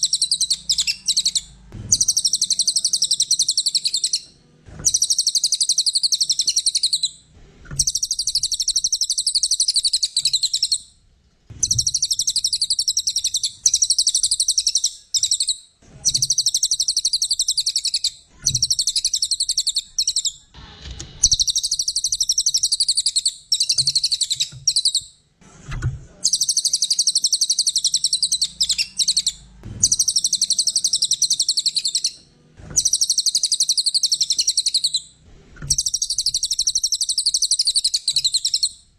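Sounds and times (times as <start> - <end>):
songbird chattering trills: 0.0 - 4.2, 4.9 - 7.2, 11.6 - 20.4, 26.2 - 32.2, 32.8 - 35.1.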